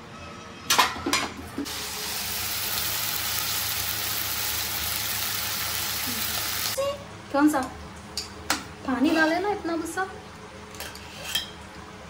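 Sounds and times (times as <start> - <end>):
loud steady sizzle: 1.7 - 7.0.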